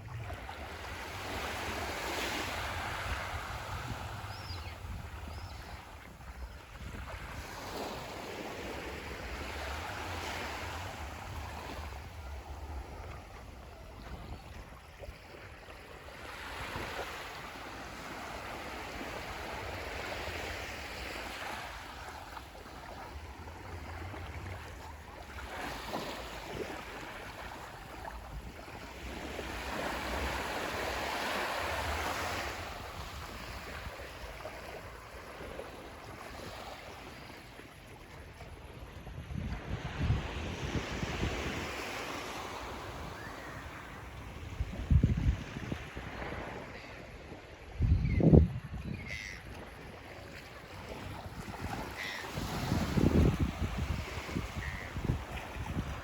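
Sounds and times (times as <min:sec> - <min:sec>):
wind rumble on microphone: 0:00.0 - 0:15.7, 0:31.8 - 0:56.0
waves washing onto sandy beach: 0:00.0 - 0:47.8, 0:49.4 - 0:56.0.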